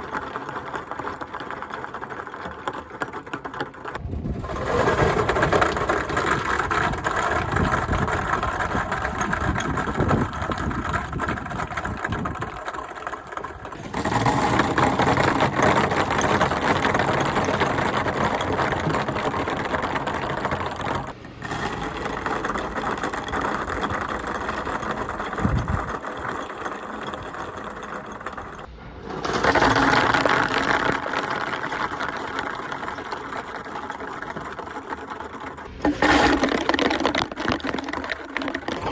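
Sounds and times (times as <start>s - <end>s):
ping pong balls rattling down slide: 0.0s - 38.9s.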